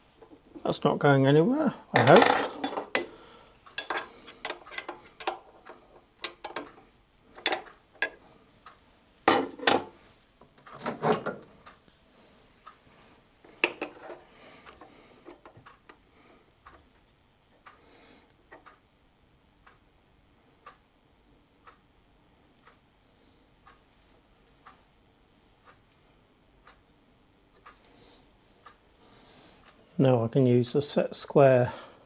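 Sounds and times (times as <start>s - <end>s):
metal tools clinking and knocking: 2.0s - 3.0s, 3.8s - 5.4s, 10.8s - 11.5s.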